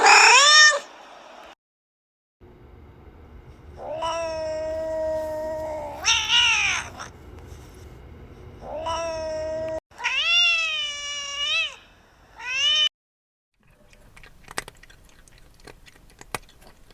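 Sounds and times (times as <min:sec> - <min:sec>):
cat meowing: 0:03.8 - 0:07.1, 0:08.6 - 0:11.8, 0:12.4 - 0:12.9.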